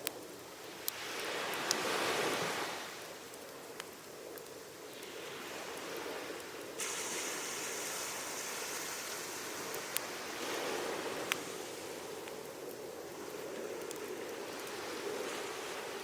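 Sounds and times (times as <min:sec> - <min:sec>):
wood fire burning: 0:00.0 - 0:16.0
waves washing on shore: 0:00.8 - 0:03.4, 0:04.9 - 0:16.0
sharp hiss: 0:06.8 - 0:12.2.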